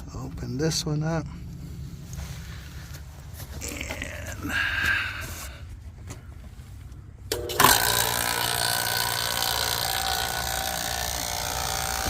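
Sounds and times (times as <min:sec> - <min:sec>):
vacuum pump running: 0:07.3 - 0:12.0.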